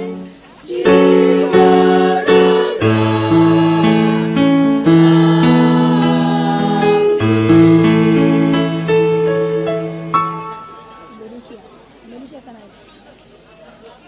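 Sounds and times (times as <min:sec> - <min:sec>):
choir singing chords: 0:00.0 - 0:10.6.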